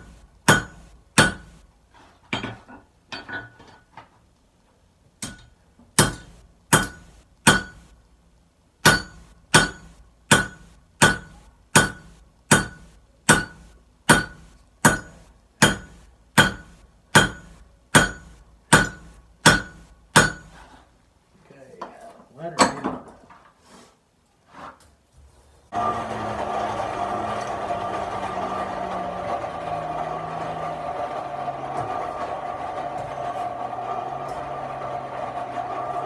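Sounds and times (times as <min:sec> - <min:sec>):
hammer striking steel on anvil: 0:00.0 - 0:01.6, 0:05.2 - 0:07.9, 0:08.8 - 0:20.6.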